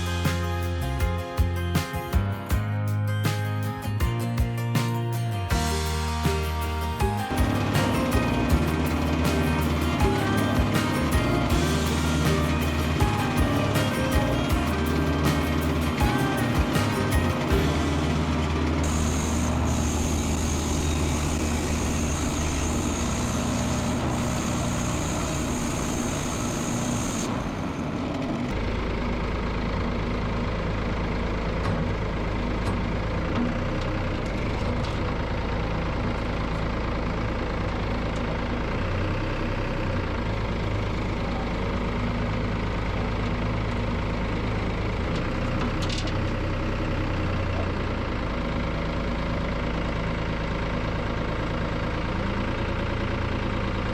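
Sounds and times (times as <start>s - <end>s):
engine idling: 5.3s - 53.9s.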